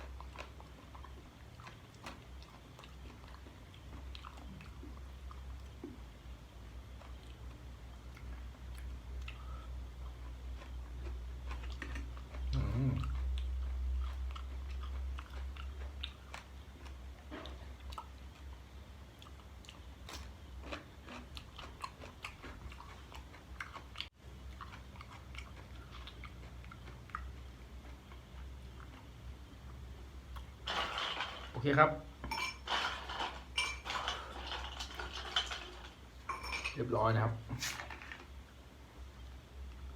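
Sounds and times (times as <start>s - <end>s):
person chewing crunchy food: 0.0s - 6.1s, 6.8s - 30.8s.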